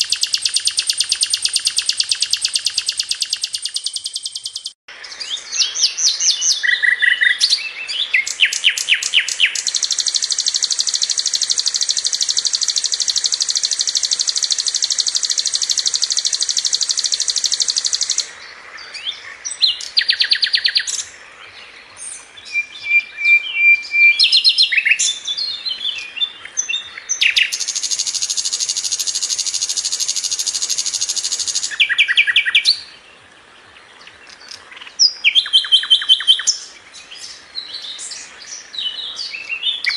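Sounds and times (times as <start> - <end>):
fast bird trills: 0.0 - 4.8, 5.6 - 18.3, 27.1 - 32.9
flycatcher singing high chirps: 0.0 - 18.3, 22.5 - 32.9.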